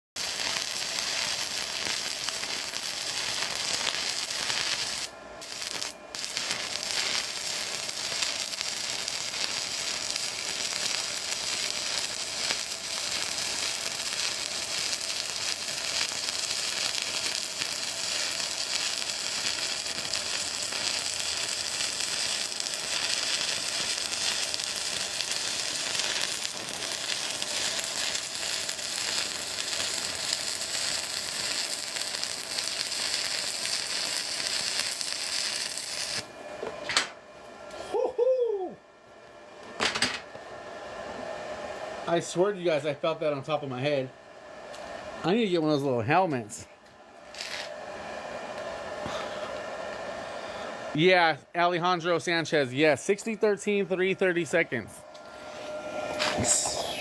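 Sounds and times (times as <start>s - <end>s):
welding arc crackling and sizzling: 0.2s - 36.4s, 47.2s - 47.8s, 55.7s - 57.0s.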